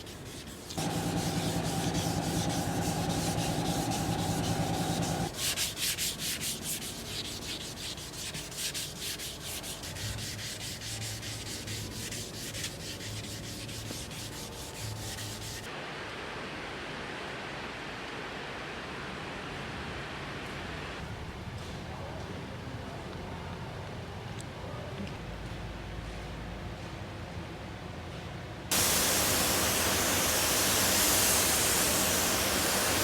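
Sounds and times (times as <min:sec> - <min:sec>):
steady hiss: 0:00.0 - 0:05.6, 0:28.7 - 0:33.0
sandpaper rubbing on metal panel: 0:00.0 - 0:15.7
steady low hum: 0:00.8 - 0:05.3.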